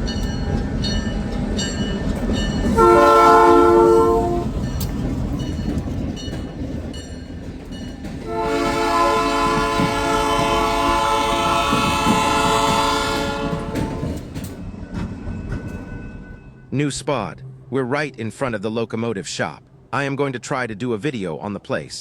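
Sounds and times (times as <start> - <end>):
moving train rumble and clickety-clack: 0.0 - 16.7
diesel locomotive horn blasts: 2.6 - 4.7, 8.2 - 14.3.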